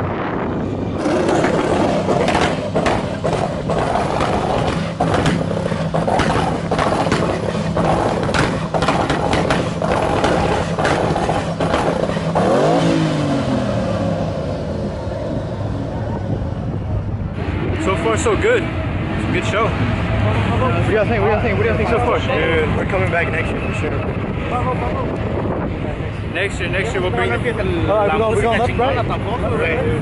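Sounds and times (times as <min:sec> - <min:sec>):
vehicle engine revving: 0:00.0 - 0:23.0
clattering and scraping: 0:01.0 - 0:12.5.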